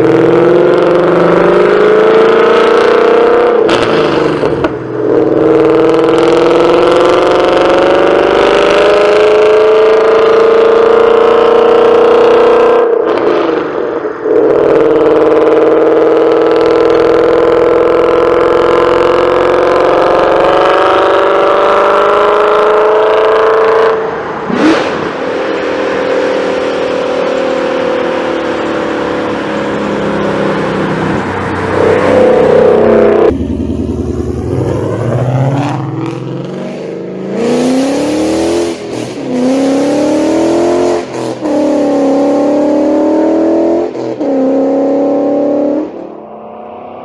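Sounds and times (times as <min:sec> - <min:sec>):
engine revving hard: 0:00.0 - 0:13.6, 0:34.3 - 0:46.2.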